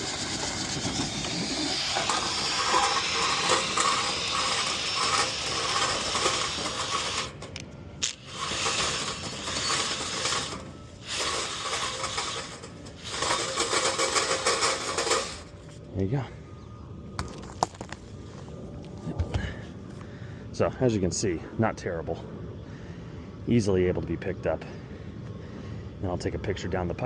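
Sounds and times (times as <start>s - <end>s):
brush rattling inside vent duct: 0.0s - 7.6s, 8.2s - 15.5s.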